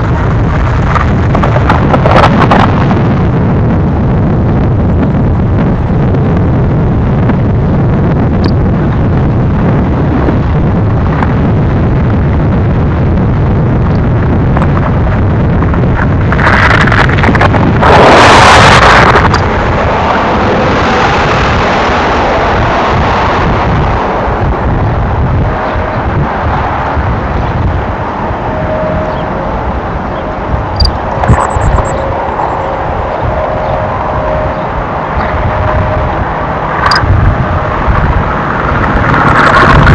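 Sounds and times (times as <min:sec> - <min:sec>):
rush of noise: 0:00.0 - 0:39.9
freight train rolling past: 0:31.9 - 0:39.8.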